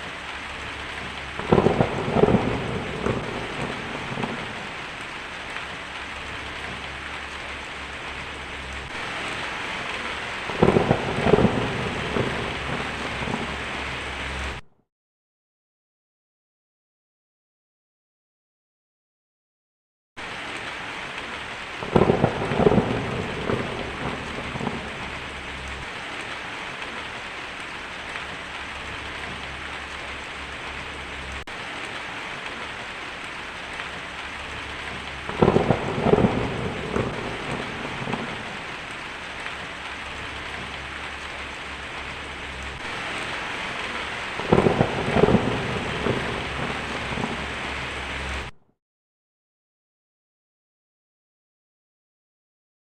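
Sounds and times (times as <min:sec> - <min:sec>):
heavy rain on a tin roof: 0:00.0 - 0:14.6, 0:20.2 - 0:48.6
thunder rolling: 0:00.5 - 0:14.6, 0:21.8 - 0:27.3, 0:28.1 - 0:48.5.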